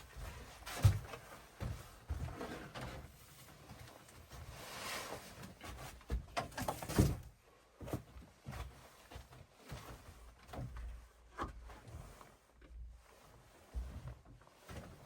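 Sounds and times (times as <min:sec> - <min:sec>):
objects knocking and thumping: 0:06.0 - 0:07.3.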